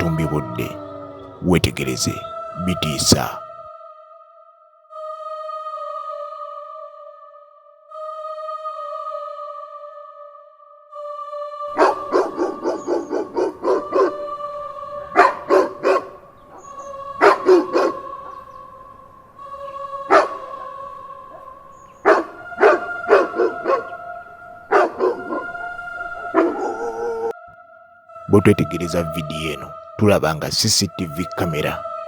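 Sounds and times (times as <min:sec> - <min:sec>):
eerie music drone: 0:00.0 - 0:02.7
dog barking: 0:11.8 - 0:14.2, 0:15.1 - 0:16.2, 0:17.2 - 0:18.1, 0:20.1 - 0:20.7, 0:22.0 - 0:24.0, 0:24.7 - 0:25.6, 0:26.2 - 0:27.4.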